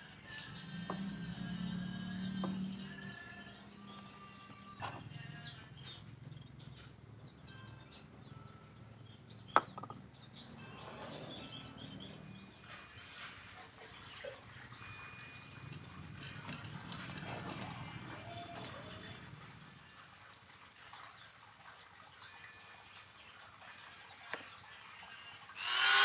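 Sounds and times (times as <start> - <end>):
small birds chirping: 0.0 - 15.4.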